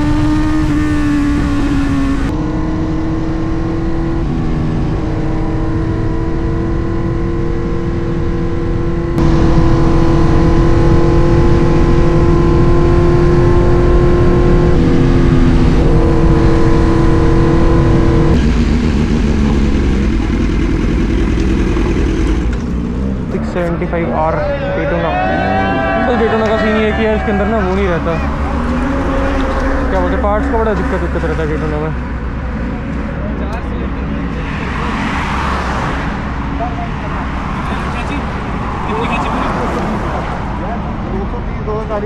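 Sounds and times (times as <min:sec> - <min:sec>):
wind rush on microphone: 0:00.0 - 0:20.2
motorcycle engine under way: 0:00.0 - 0:24.2, 0:25.3 - 0:35.4.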